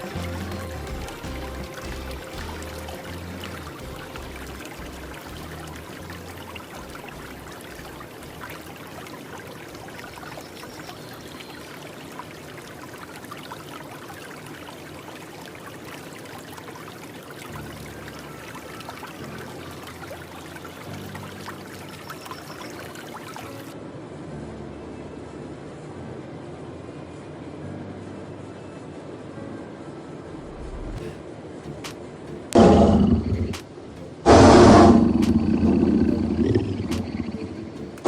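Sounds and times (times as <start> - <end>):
low hum-like tones: 0.0 - 11.4, 24.0 - 38.0
running water: 0.0 - 23.8, 30.2 - 38.0.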